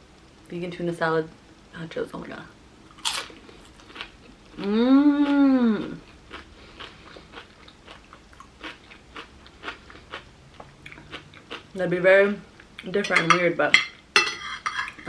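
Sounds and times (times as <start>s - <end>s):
crunchy chip bite and chewing: 2.9s - 11.7s
person humming mmm: 4.6s - 6.1s.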